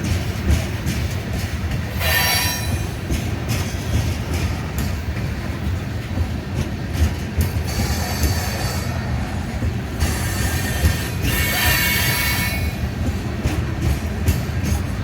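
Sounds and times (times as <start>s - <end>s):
train cars rumbling by: 0.0s - 15.0s
wheel flanges squealing: 10.0s - 12.9s.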